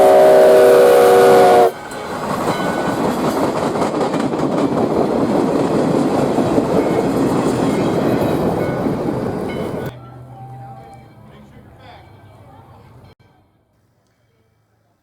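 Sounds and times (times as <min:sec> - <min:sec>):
train wheels clattering over rails: 0:01.1 - 0:09.9.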